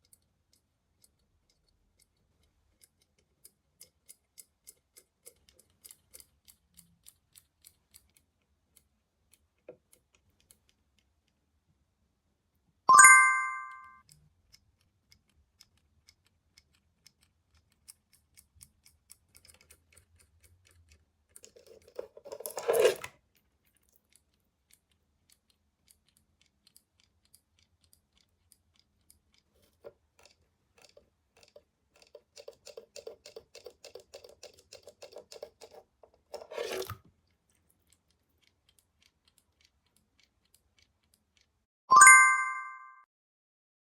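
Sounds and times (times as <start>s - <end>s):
bright bell-like chime: 12.9s - 14.0s, 41.9s - 43.1s
crinkling and rustling: 21.4s - 24.0s.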